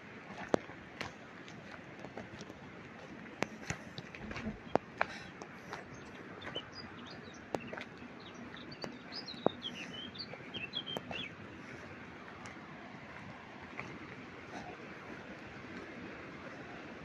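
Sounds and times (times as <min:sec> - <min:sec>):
songbird chirping: 0:03.4 - 0:12.6.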